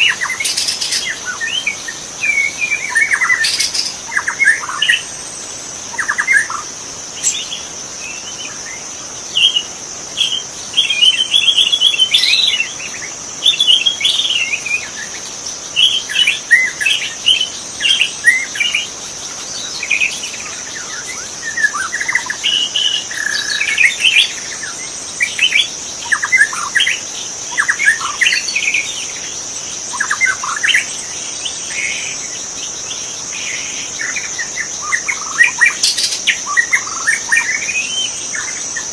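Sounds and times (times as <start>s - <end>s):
high-pitched insect drone: 0.0s - 38.9s
bird singing whistled phrases: 10.3s - 15.2s.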